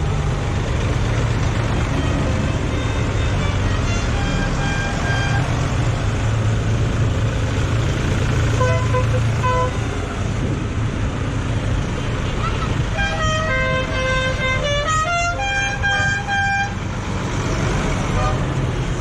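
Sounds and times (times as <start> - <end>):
tractor engines running: 0.0 - 19.0.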